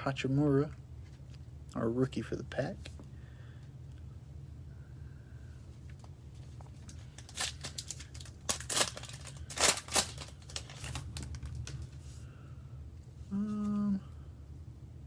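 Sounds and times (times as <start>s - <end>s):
steady low hum: 0.0s - 15.0s
wrapper tearing and crinkling: 6.8s - 12.0s.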